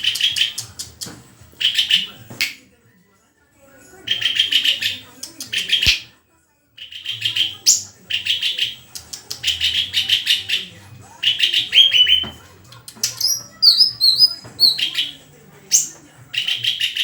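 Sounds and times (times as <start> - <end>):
bird chirping and whistling: 11.3 - 12.4, 13.1 - 17.0.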